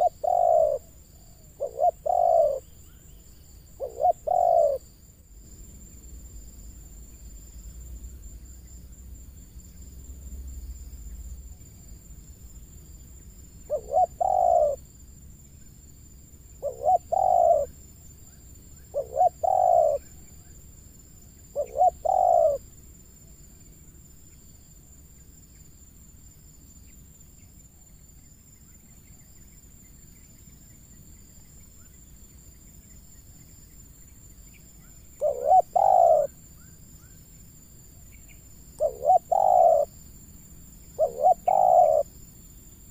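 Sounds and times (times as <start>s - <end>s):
dove cooing: 0.0s - 2.7s, 3.8s - 4.9s, 13.7s - 14.8s, 16.6s - 17.8s, 18.8s - 20.3s, 21.5s - 22.6s, 35.1s - 36.4s, 38.8s - 40.0s, 40.9s - 42.1s.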